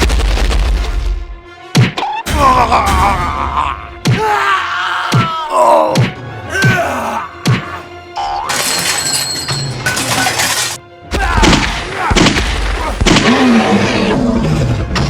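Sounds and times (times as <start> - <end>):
background music: 0.0 - 15.0
crashing and breaking effects: 8.5 - 15.0.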